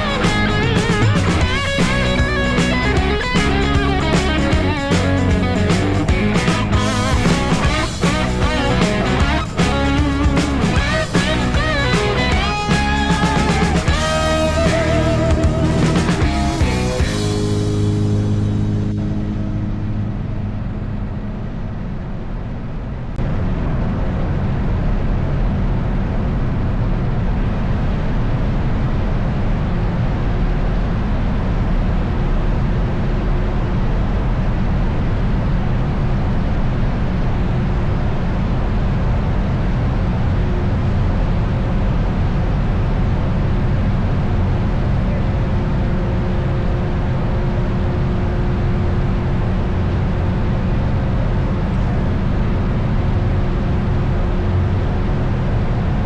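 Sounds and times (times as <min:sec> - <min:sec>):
music track: 0:00.0 - 0:21.2
motorcycle engine riding: 0:00.0 - 0:22.0.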